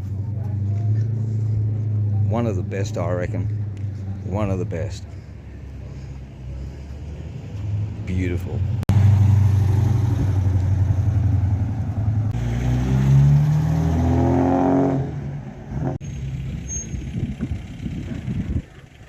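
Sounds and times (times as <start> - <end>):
car engine revving: 5.3 - 18.7.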